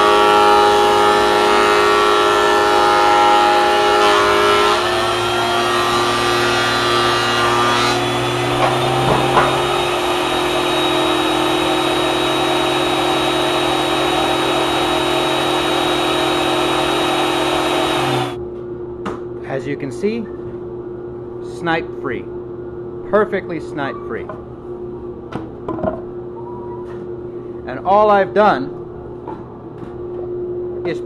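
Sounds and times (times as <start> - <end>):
thickness planer whining: 0.0 - 18.4.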